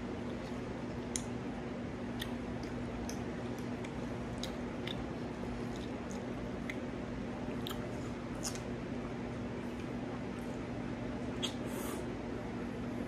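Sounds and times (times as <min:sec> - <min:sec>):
low steady hum: 0:00.0 - 0:13.0
person chewing food: 0:00.2 - 0:01.4, 0:02.0 - 0:08.8.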